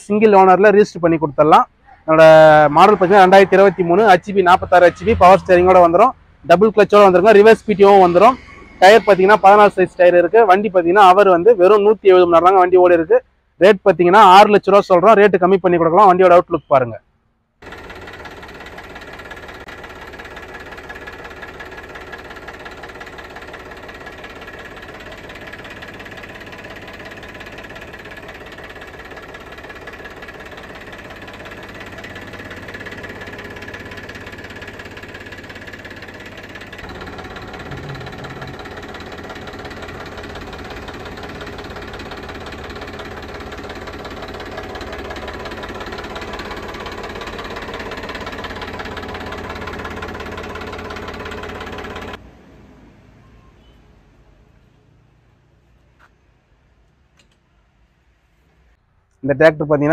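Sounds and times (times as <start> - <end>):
tractor diesel engine idling: 0.0 - 13.0, 17.6 - 52.2.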